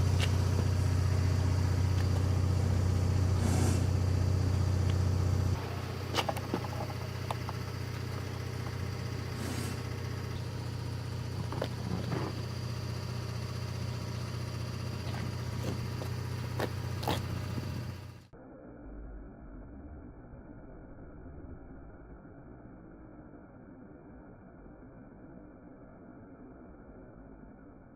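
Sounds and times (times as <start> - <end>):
engine idling hum: 0.0 - 18.4.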